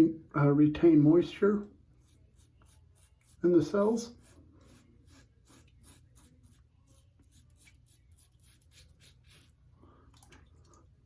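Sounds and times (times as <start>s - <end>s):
razor scratching during shave: 2.0s - 9.6s.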